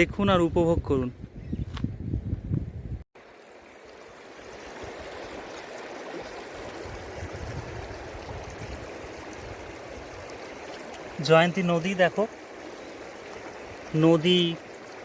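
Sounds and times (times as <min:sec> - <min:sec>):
river water running over stones: 0:03.2 - 0:15.0.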